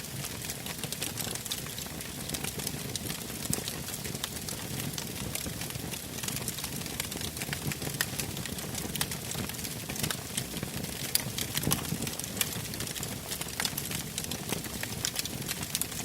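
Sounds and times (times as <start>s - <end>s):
fire crackling and popping: 0.0s - 16.0s
low rumble of flame: 0.0s - 16.0s.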